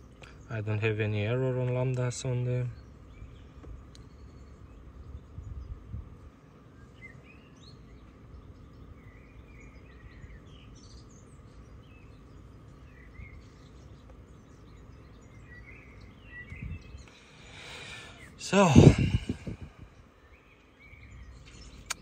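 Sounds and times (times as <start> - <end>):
birds chirping: 0.0 - 22.0
low steady hum: 0.0 - 22.0.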